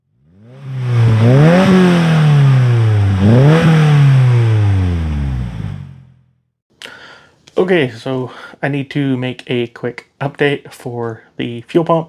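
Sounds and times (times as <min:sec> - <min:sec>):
car engine revving: 0:00.1 - 0:06.2.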